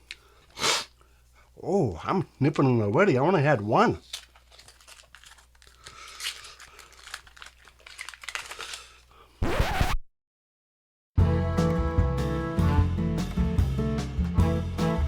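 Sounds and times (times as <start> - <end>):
packaging crinkling and tearing: 4.0 - 9.1.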